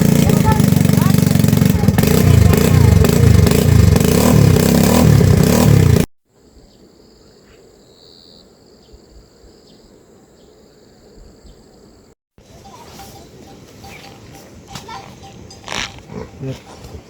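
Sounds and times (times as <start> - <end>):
vehicle engine running loudly: 0.0 - 6.1
faint insect chirps: 6.4 - 16.0
insects droning: 6.4 - 17.0.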